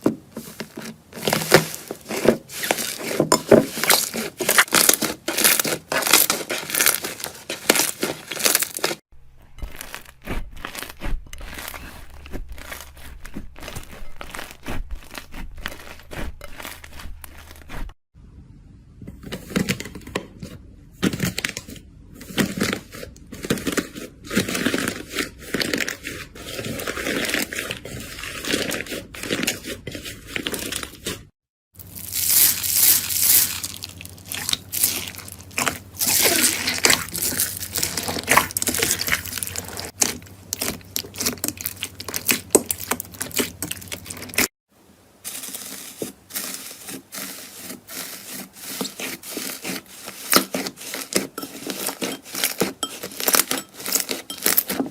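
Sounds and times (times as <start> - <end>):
slime crackling and popping: 1.2 - 17.8, 31.8 - 44.5.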